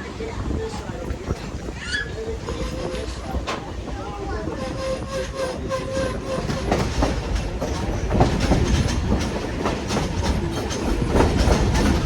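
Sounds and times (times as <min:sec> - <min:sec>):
train rumbling on track: 0:00.0 - 0:12.0
wheels clicking over rail joints: 0:02.3 - 0:12.0.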